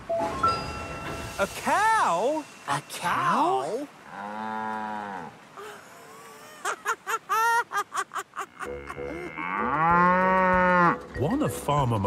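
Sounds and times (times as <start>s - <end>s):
cow mooing: 4.1s - 5.4s, 8.6s - 11.1s.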